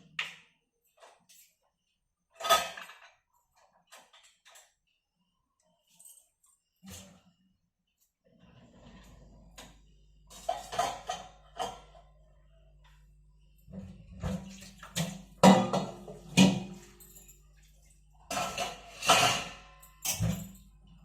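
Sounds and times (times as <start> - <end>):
dishes clattering: 2.4 - 3.2, 10.3 - 12.1, 14.2 - 17.1, 18.3 - 20.6
water running: 13.7 - 18.2.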